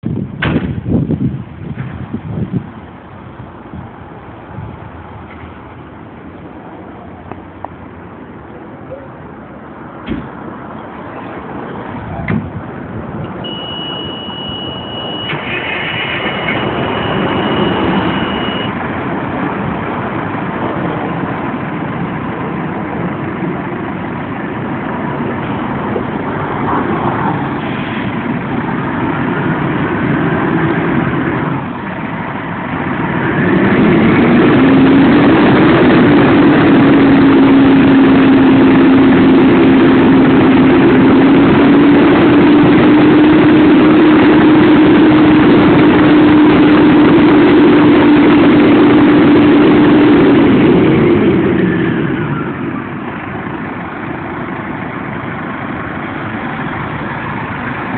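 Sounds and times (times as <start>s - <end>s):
diesel engine running: 0.0s - 57.9s
loud rising tone: 3.5s - 57.9s
thin high steady beep: 13.4s - 15.4s, 16.2s - 18.8s.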